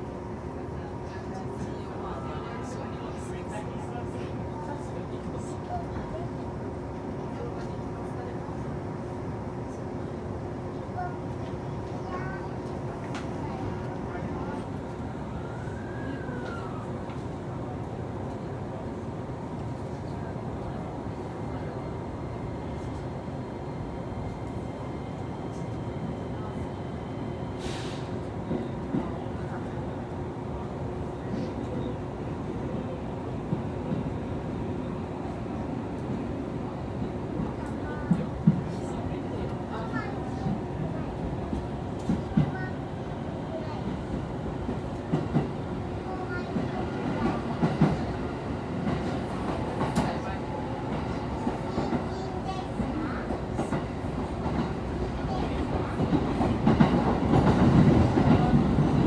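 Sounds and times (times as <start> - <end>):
train wheels rumbling on rails: 37.0 - 59.0.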